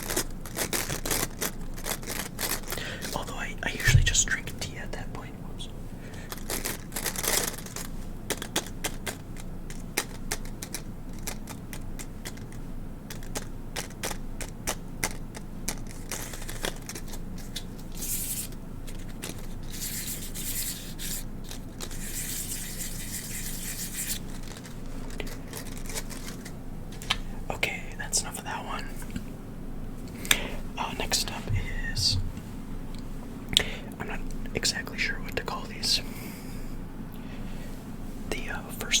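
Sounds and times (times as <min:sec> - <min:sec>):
scratchy hiss: 0:00.0 - 0:08.4, 0:16.0 - 0:18.6, 0:19.6 - 0:26.6, 0:30.0 - 0:36.4, 0:37.5 - 0:39.0
packaging crackles and clicks: 0:24.3 - 0:27.1.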